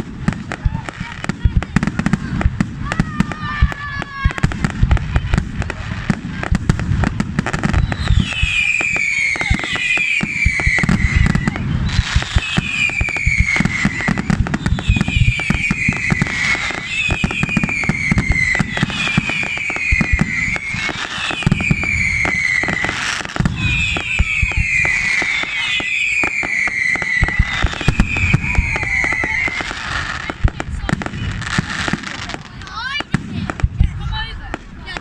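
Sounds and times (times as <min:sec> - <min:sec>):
fireworks crackling and banging: 0:00.0 - 0:35.0
high descending firework whistle: 0:07.4 - 0:32.5.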